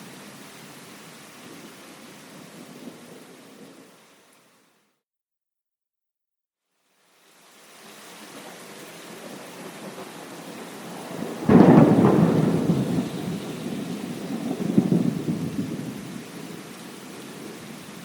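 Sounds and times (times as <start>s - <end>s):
steady rain: 0.0s - 5.0s, 6.7s - 18.0s
thunderclap with rumble: 9.2s - 16.6s.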